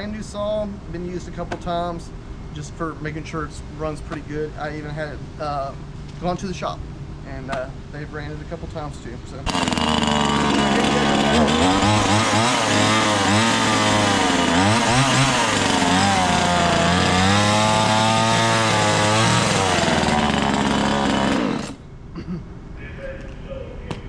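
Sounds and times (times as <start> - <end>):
chainsaw revving: 9.4 - 21.8.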